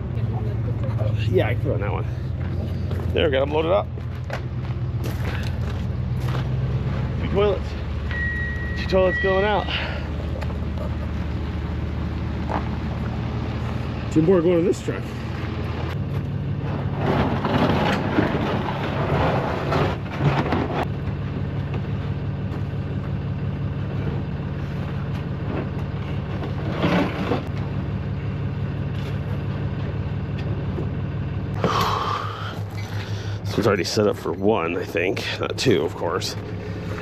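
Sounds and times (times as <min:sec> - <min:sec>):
truck engine idling: 0:00.0 - 0:37.0.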